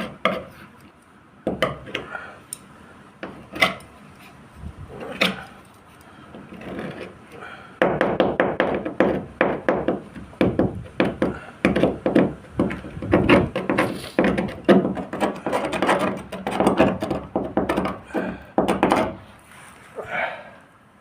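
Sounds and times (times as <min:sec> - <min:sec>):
knocking on hard wood surface: 0:07.8 - 0:15.3, 0:16.4 - 0:19.2.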